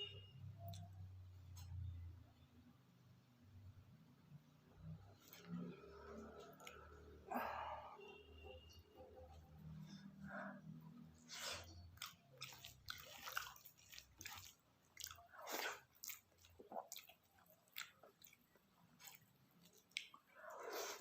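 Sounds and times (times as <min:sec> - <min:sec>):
person chewing and biting food: 0:11.3 - 0:21.0.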